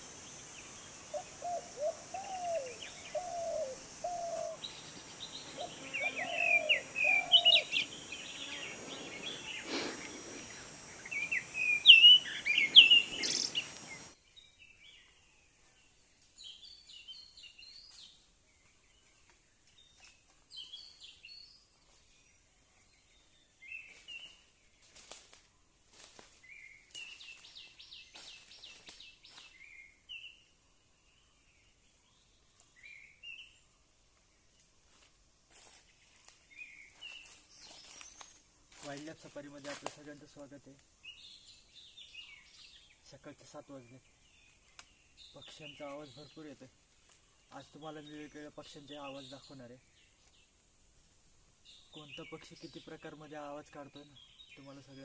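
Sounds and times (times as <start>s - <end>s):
high insect-like hiss: 0.0s - 14.2s, 23.0s - 29.7s, 34.0s - 53.6s
birds chirping: 0.0s - 21.6s, 35.9s - 50.8s, 51.6s - 55.0s
low warbling bird call: 1.1s - 14.1s.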